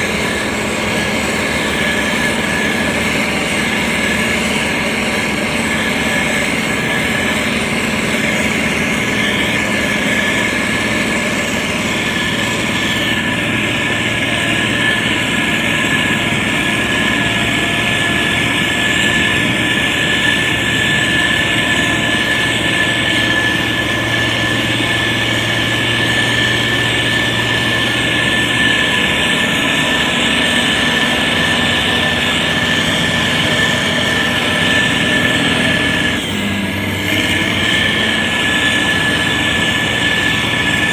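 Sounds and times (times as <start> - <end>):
grader diesel engine hum: 0.0 - 40.9
high whine: 0.0 - 40.9.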